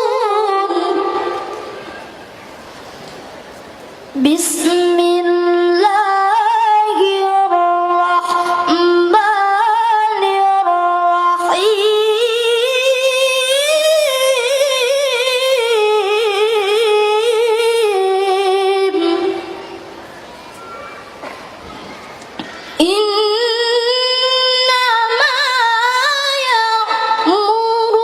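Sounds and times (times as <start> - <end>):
person chanting recitation: 4.2 - 19.8.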